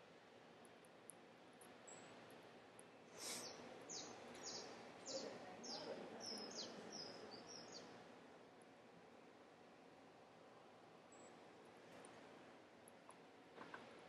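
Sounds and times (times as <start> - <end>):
bird chirping faintly: 1.6 - 8.0.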